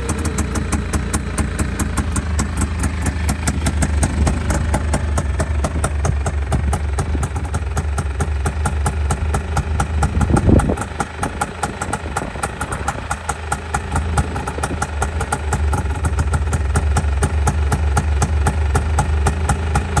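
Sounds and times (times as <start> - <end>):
buggy engine idling: 0.0 - 20.0.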